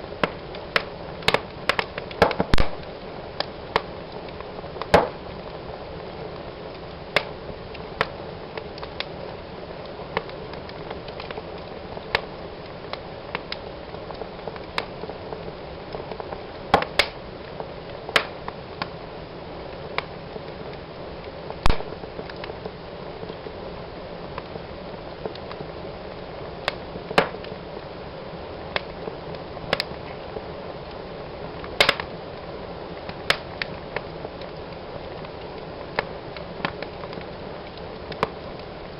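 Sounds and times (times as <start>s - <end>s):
wood fire crackling: 0.0s - 38.9s
wood snapping and popping: 0.2s - 5.3s, 16.7s - 17.2s, 18.1s - 18.9s, 21.6s - 22.7s, 26.6s - 27.6s, 29.7s - 30.0s, 31.6s - 32.1s, 33.1s - 34.6s, 36.0s - 38.4s.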